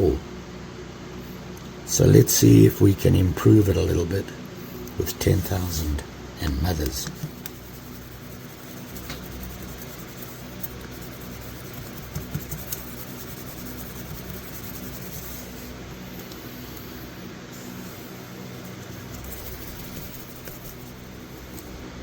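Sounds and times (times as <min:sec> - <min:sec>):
knife blade scratching on abrasive: 0:07.1 - 0:15.7, 0:18.7 - 0:21.7.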